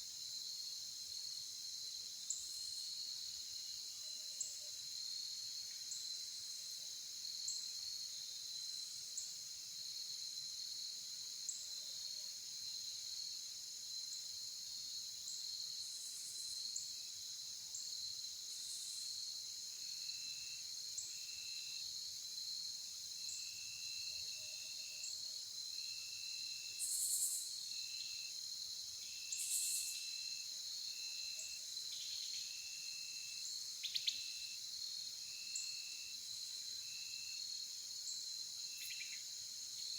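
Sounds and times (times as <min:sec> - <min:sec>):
sharp insect chirps: 0:26.8 - 0:28.1, 0:29.0 - 0:30.2, 0:33.4 - 0:34.6, 0:38.1 - 0:39.2
insects trilling: 0:29.0 - 0:30.4, 0:38.1 - 0:39.9.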